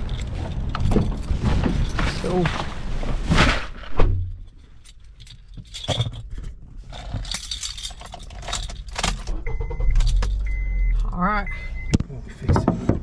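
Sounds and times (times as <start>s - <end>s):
handling knocks and clicks: 0.0s - 2.7s, 4.4s - 9.4s
metallic jingling: 4.4s - 10.6s.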